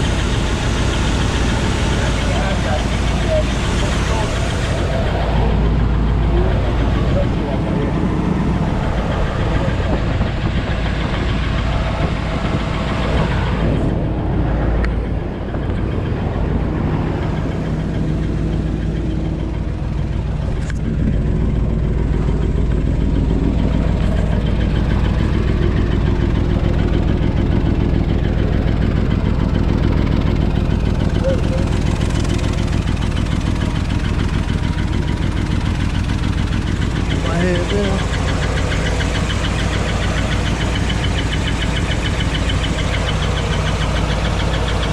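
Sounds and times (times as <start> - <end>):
truck engine running: 0.0 - 44.9.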